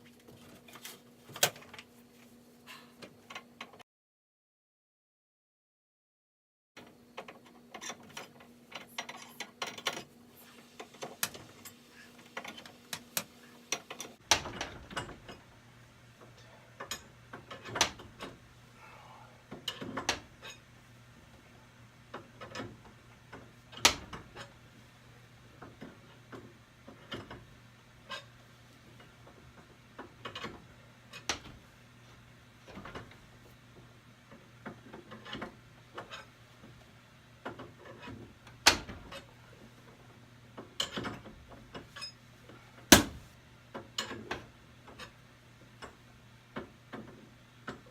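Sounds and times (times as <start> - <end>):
metal clicks and clanks: 7.2 - 10.1, 16.3 - 18.4, 19.5 - 20.6, 29.0 - 31.6, 40.6 - 42.2, 43.7 - 45.2.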